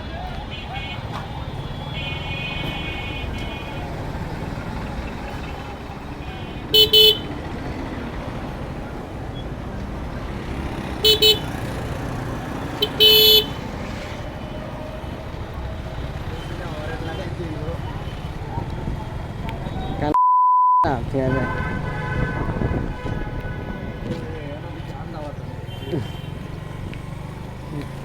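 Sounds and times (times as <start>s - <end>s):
traffic rumble: 0.0s - 20.2s, 20.8s - 28.0s
vehicle horn honking: 0.4s - 3.9s, 6.2s - 7.4s, 11.0s - 11.6s, 12.8s - 13.6s, 21.2s - 24.4s.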